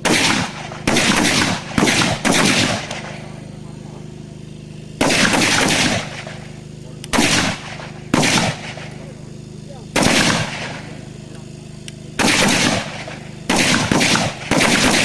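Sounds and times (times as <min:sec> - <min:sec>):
rifle fired in rapid bursts: 0:00.0 - 0:03.2, 0:05.0 - 0:06.4, 0:07.1 - 0:08.9, 0:09.9 - 0:10.9, 0:12.2 - 0:15.0
steady low hum: 0:00.0 - 0:15.0.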